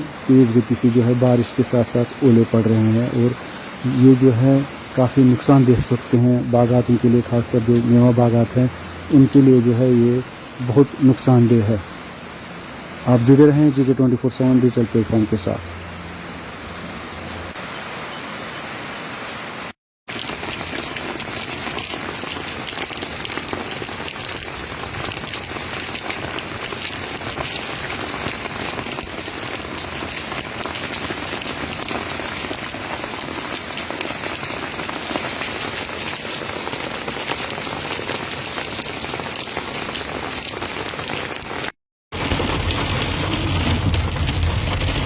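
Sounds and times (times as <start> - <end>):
heavy rain and hail pelting: 20.1 - 45.0.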